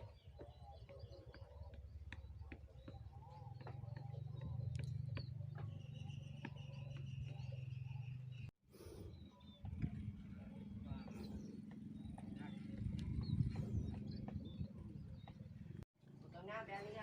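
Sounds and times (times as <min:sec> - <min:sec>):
birds chirping: 0:00.0 - 0:15.9.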